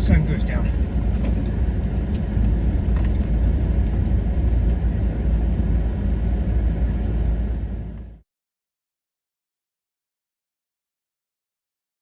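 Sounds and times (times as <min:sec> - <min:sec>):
car engine and road noise: 0:00.0 - 0:08.2.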